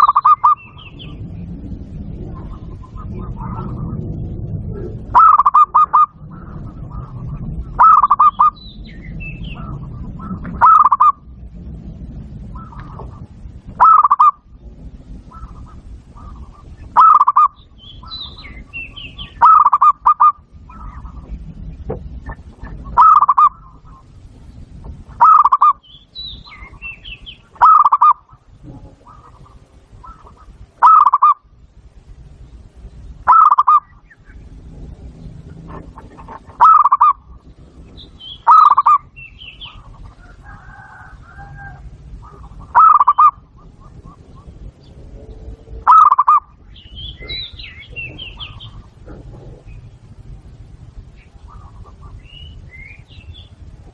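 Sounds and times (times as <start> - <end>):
faint high bird chirps: 0.0 - 1.3, 36.6 - 44.9
dove stuttering coo: 0.0 - 11.3, 12.1 - 25.8, 26.5 - 31.5, 33.2 - 52.6.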